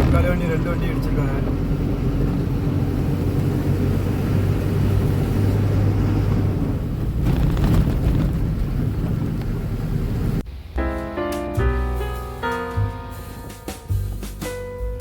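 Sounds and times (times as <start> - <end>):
truck diesel engine droning: 0.0 - 10.4
road and tyre noise: 0.0 - 11.0, 11.7 - 14.5.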